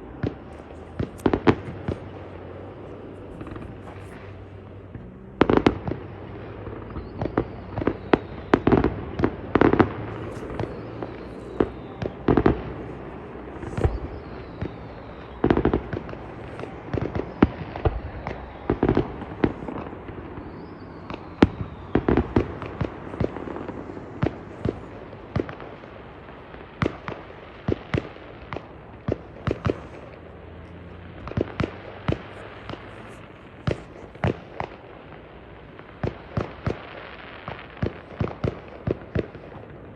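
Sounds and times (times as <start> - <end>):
fireworks bangs and pops: 0.0 - 39.9
faint falling whistles: 6.8 - 23.7.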